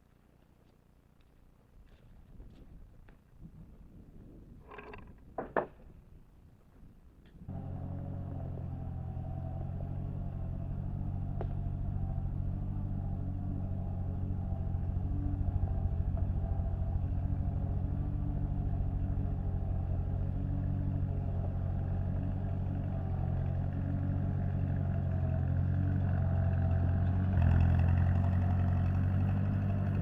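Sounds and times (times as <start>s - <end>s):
engine running: 7.4s - 30.0s.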